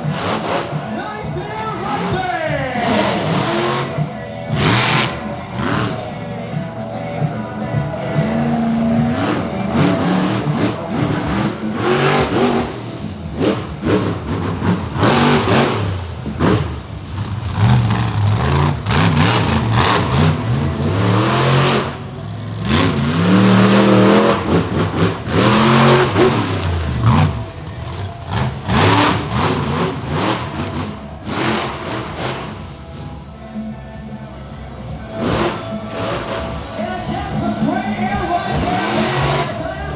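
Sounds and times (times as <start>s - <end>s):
monster truck engine revving: 0.0s - 1.0s, 1.9s - 33.3s, 35.1s - 36.8s, 38.4s - 39.8s.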